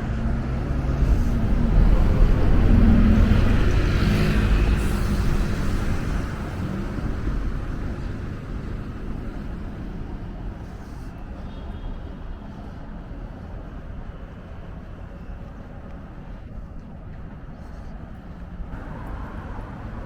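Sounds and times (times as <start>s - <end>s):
vehicle passing by: 0.0s - 9.5s
low traffic rumble: 0.0s - 20.0s.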